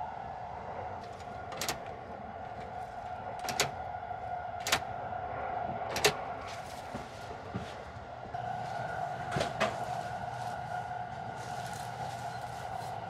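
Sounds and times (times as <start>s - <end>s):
moving train interior hum: 0.0s - 13.0s
sharp clicks: 3.4s - 3.8s, 4.6s - 4.9s.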